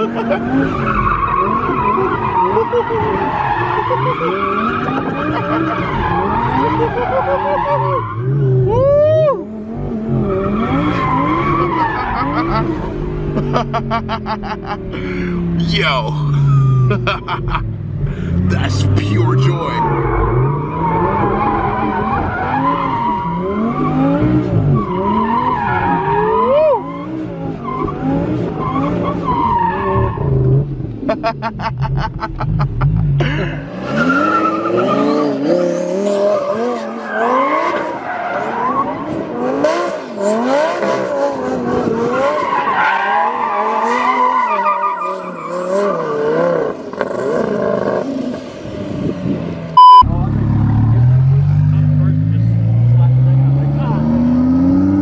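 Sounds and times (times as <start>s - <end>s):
tyres squealing and skidding: 0.0s - 9.5s, 10.1s - 17.0s, 18.3s - 30.6s, 33.6s - 47.8s
car engine revving: 9.4s - 42.6s, 45.0s - 55.0s.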